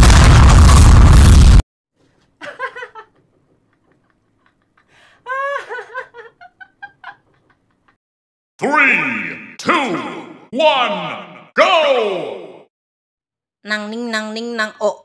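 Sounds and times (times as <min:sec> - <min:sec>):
loud blast sound effect: 0:00.0 - 0:01.6
man laughing: 0:02.4 - 0:08.0.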